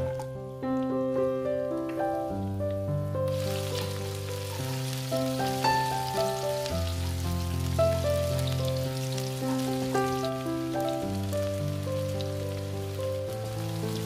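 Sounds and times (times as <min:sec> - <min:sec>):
slow background music: 0:00.0 - 0:14.0
food sizzling in hot oil: 0:03.3 - 0:14.0.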